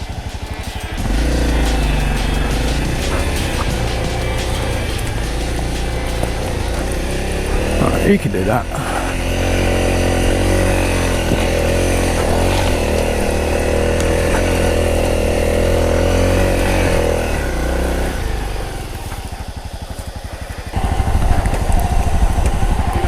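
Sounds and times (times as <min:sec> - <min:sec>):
dirt bike engine running: 0:00.0 - 0:23.0.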